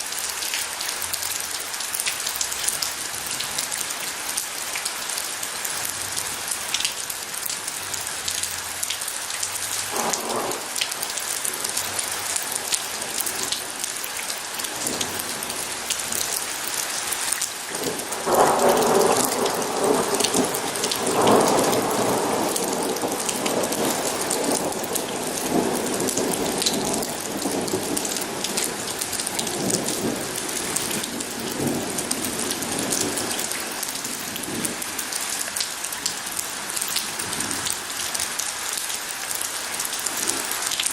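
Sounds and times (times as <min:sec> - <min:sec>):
rain pattering: 0:00.0 - 0:40.9
thunder rolling: 0:09.9 - 0:10.8, 0:17.8 - 0:33.3.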